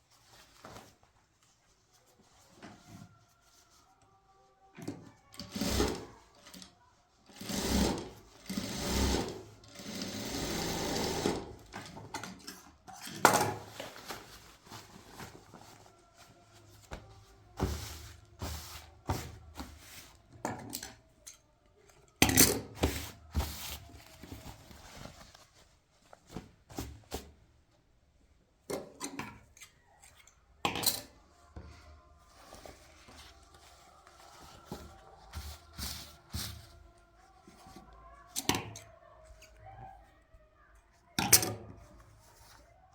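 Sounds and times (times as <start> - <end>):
sewing machine running: 7.4 - 11.5.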